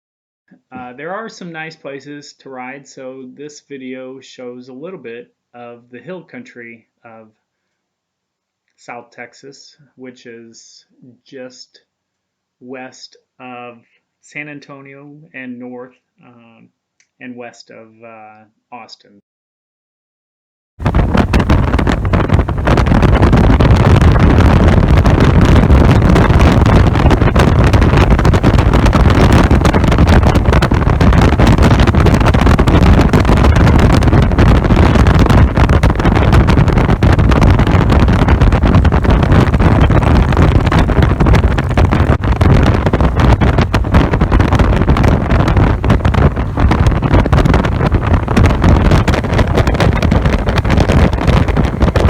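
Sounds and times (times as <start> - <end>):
wind buffeting microphone: 20.8 - 52.0.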